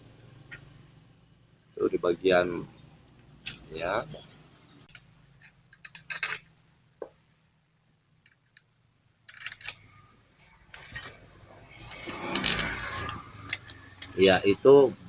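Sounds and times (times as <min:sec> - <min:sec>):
metal bolts and tools clinking: 0:04.6 - 0:06.6, 0:08.2 - 0:10.0, 0:10.7 - 0:11.3, 0:11.9 - 0:14.2
metal rattling: 0:04.6 - 0:06.6, 0:09.3 - 0:14.4.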